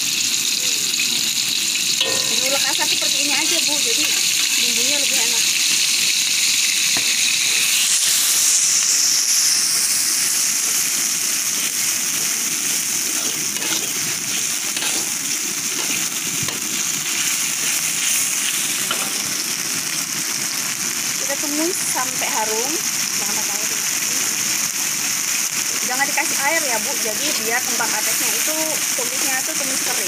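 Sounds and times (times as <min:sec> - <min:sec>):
spice paste sizzling in oil: 0:00.0 - 0:30.0
metal spatula scraping pan: 0:13.2 - 0:16.7.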